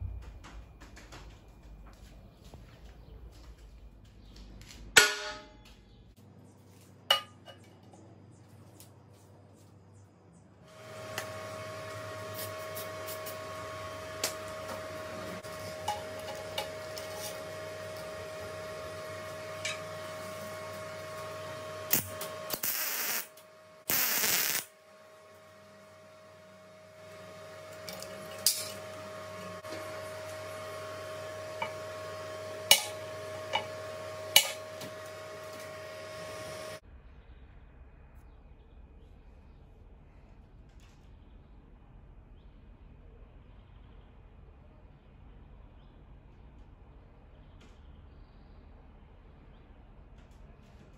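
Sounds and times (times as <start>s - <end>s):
steady hum: 0.0s - 50.6s.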